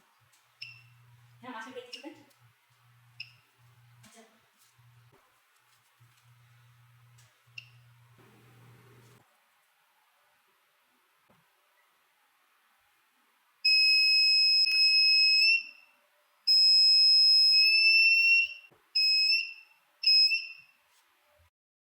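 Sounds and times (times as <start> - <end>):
buzzer alarm beeping: 13.7 - 15.8, 16.5 - 20.7.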